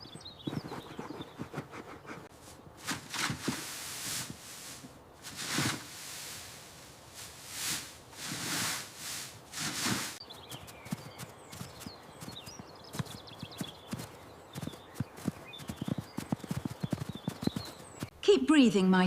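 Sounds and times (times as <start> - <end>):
horse breathing heavily: 0.5 - 2.3.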